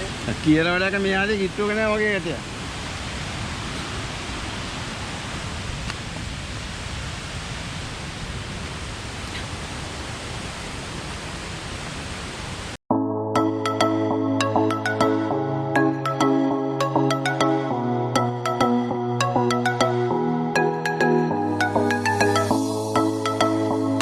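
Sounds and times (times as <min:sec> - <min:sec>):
electronic background music: 0:12.9 - 0:24.0.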